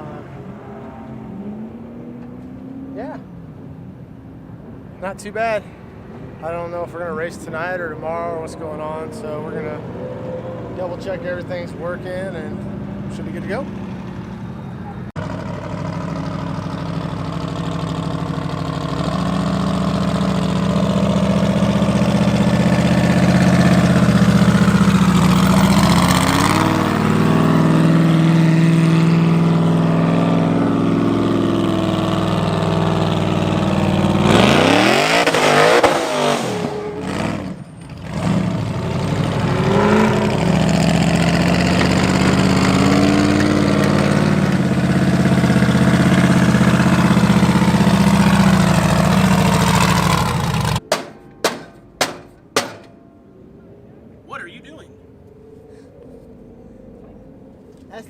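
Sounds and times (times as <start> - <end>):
race car engine running: 15.2 - 50.8.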